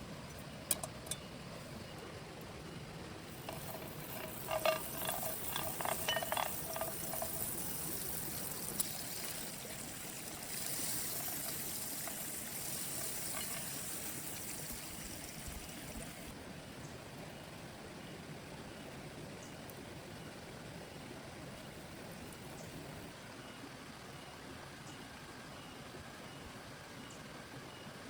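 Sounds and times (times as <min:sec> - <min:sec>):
sharp drips and knocks: 0:03.4 - 0:15.0.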